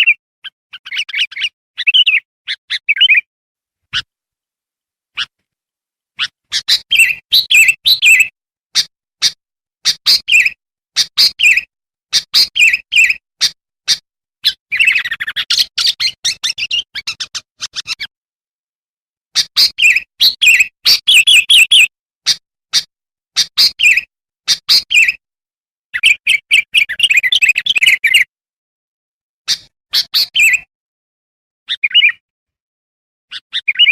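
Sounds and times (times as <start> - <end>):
bird chirping and twittering: 0.0 - 3.3, 6.2 - 18.1, 19.4 - 25.2, 26.0 - 28.3, 29.5 - 30.7, 31.7 - 32.2, 33.3 - 33.9.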